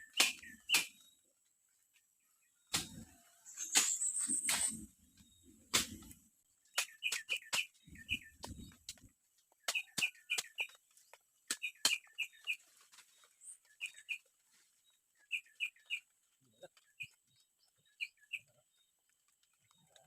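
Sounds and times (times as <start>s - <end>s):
bird chipping calls: 0.0s - 1.1s, 2.6s - 9.0s, 9.6s - 12.7s, 13.4s - 14.3s, 15.2s - 16.1s.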